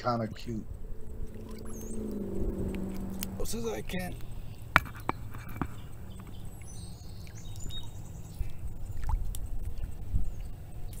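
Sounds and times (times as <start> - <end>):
low rumble: 0.0 - 4.7.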